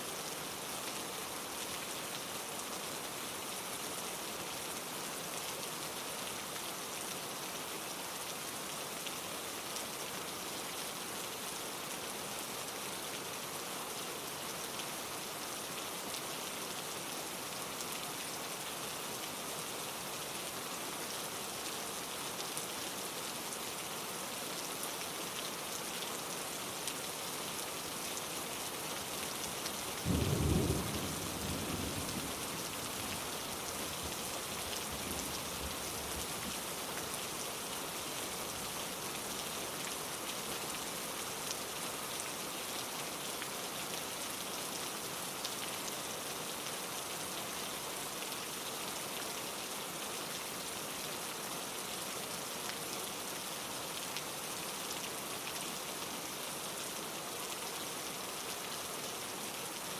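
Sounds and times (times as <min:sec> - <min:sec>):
steady rain: 0:00.0 - 0:59.9
deep rumble of thunder: 0:30.1 - 0:32.4.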